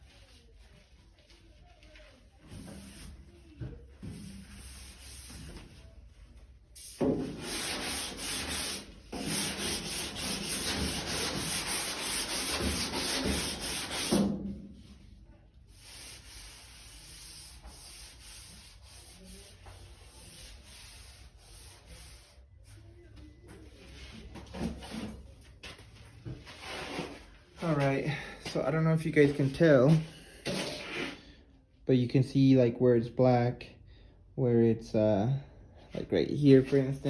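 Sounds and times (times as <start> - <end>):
sanding block rasping on filler: 4.2 - 5.4, 7.0 - 14.3, 15.7 - 22.3.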